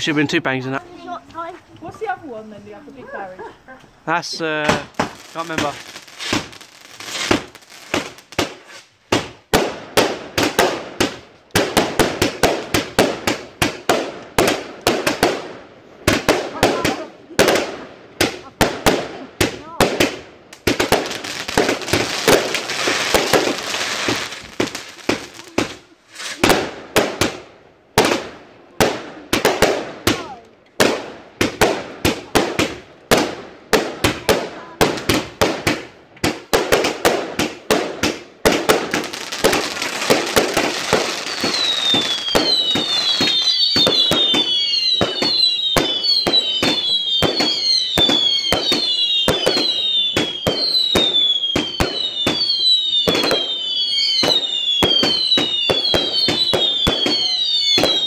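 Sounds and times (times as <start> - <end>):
fireworks bangs and crackles: 0.0 - 58.0
falling firework whistles: 4.3 - 9.4, 20.7 - 26.7, 38.8 - 58.0.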